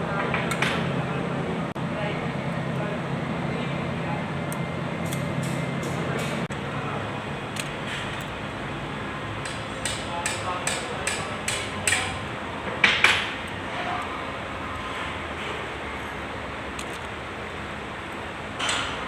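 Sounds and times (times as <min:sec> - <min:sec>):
hammer tapping on metal: 0:09.4 - 0:13.3.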